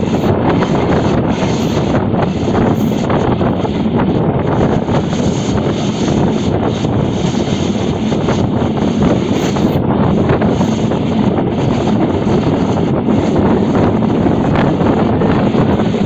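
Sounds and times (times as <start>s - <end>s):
train rumbling: 0.0s - 16.0s
wind buffeting microphone: 0.0s - 16.0s.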